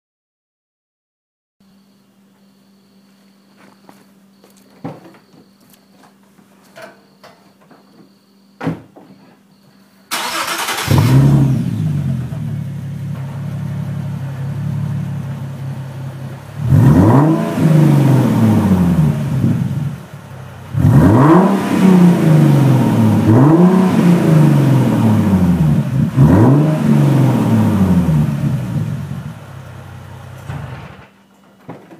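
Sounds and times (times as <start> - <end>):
car engine revving: 10.1 - 31.1
car engine starting: 10.1 - 31.2
car engine idling loudly: 10.3 - 31.0.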